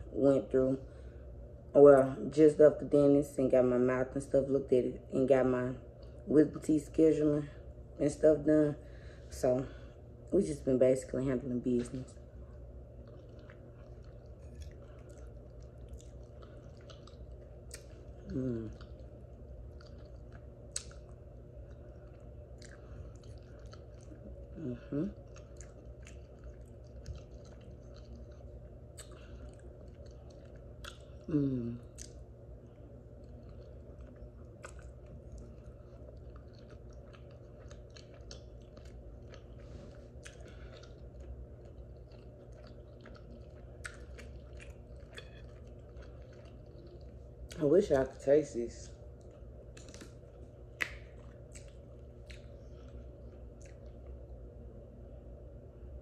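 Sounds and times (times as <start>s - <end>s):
steady low hum: 0.0s - 56.0s
person chewing soft food: 12.2s - 48.0s, 48.8s - 56.0s
wet mouth clicks and lip smacks: 19.8s - 21.1s, 49.7s - 52.5s.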